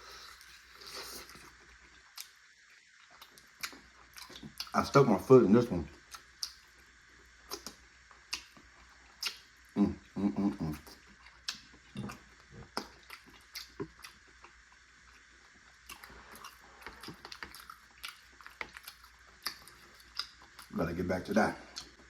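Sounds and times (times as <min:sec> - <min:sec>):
person chewing wetly: 0:00.0 - 0:04.8, 0:05.9 - 0:20.8, 0:21.6 - 0:22.0
low hum of voice: 0:09.8 - 0:11.0.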